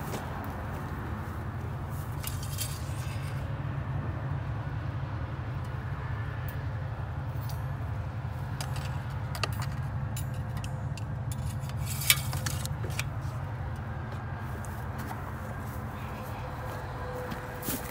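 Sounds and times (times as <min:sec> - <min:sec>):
light metallic clinks: 0:07.3 - 0:08.0.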